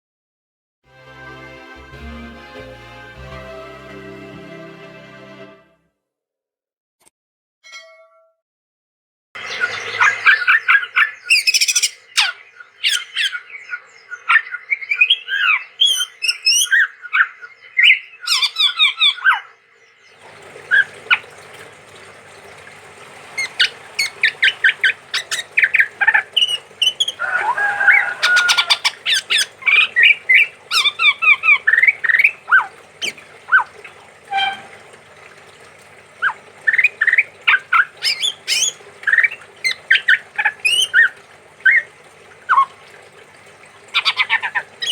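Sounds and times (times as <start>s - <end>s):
bird singing chirps and whistles: 9.6s - 19.4s, 36.7s - 41.9s.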